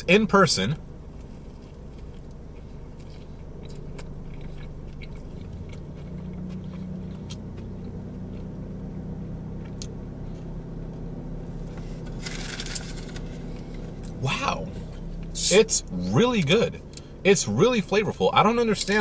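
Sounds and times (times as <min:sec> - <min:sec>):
steady low hum: 0:00.0 - 0:19.0
person chewing a sandwich: 0:01.0 - 0:08.7, 0:09.5 - 0:10.6.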